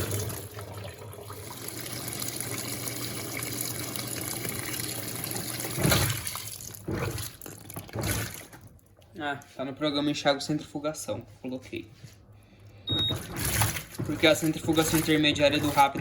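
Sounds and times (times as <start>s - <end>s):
water filling washing machine: 0.0s - 9.0s, 12.8s - 16.0s.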